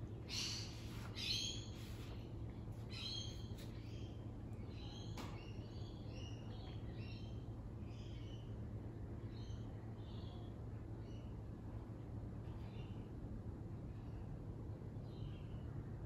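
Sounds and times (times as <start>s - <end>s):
low steady hum: 0.0s - 16.0s
birds chirping: 0.1s - 2.2s.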